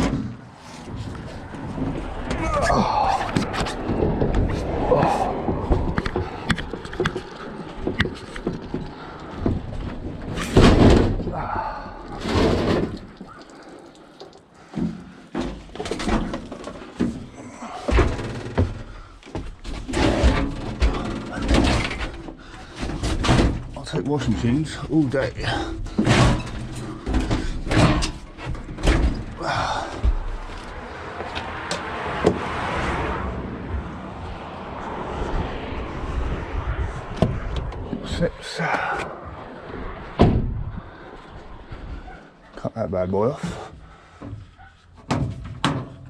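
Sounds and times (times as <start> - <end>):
road vehicle passing: 0.1 - 14.6, 26.6 - 42.6
metal cabinet knocking and banging: 19.5 - 23.8, 25.8 - 30.5, 45.0 - 46.0.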